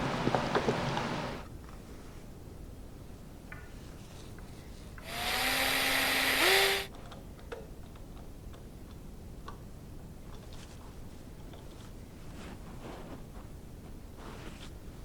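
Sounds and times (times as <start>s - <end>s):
power drill running: 5.0s - 6.9s.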